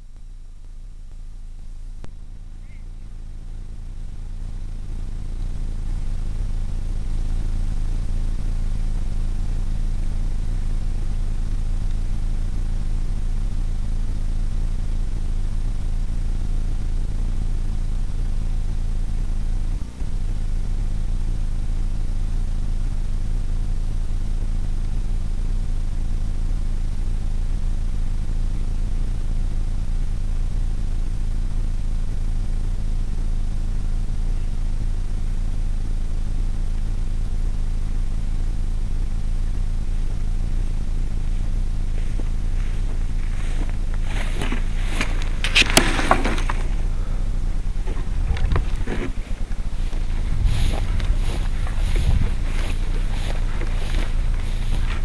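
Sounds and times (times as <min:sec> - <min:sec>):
model airplane motor drone: 0:02.7 - 0:55.0
wind noise: 0:42.2 - 0:55.0.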